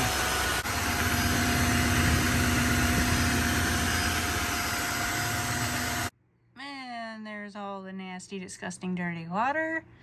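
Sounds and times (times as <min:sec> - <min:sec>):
wet-dry vacuum mop running: 0:00.0 - 0:06.1.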